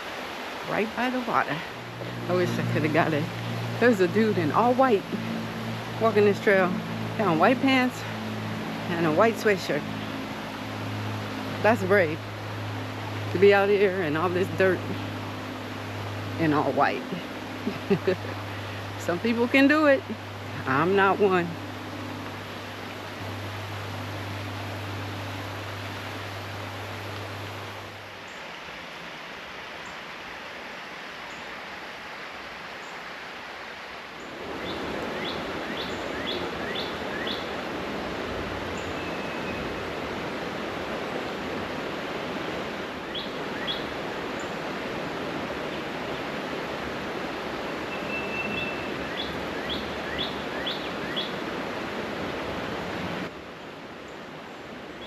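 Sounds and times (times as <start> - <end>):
flowing river water: 0.0 - 55.0
low hum: 0.7 - 28.2
bird singing high notes: 38.8 - 39.8, 47.7 - 51.3.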